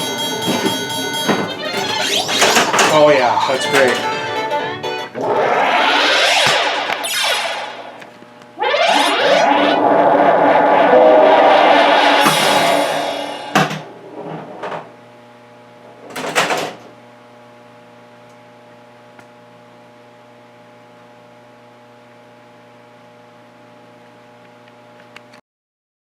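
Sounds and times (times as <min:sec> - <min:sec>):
electronic pinball game sounds: 0:00.0 - 0:14.6
low electrical hum: 0:00.0 - 0:25.4.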